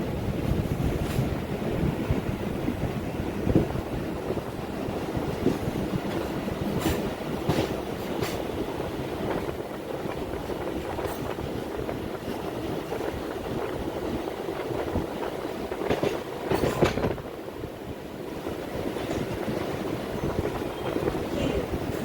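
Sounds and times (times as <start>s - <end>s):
train rumbling along track: 0.0s - 22.0s
wheels clicking over rail joints: 3.4s - 13.8s, 14.6s - 17.3s.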